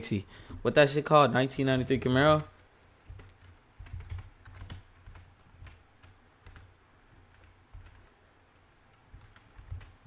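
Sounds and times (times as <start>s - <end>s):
faint keyboard typing: 1.5s - 10.0s.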